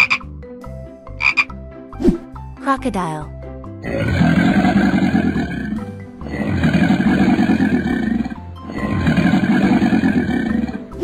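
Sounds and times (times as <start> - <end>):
background music: 0.0 - 11.0
low rasping crocodile growl: 3.8 - 11.0.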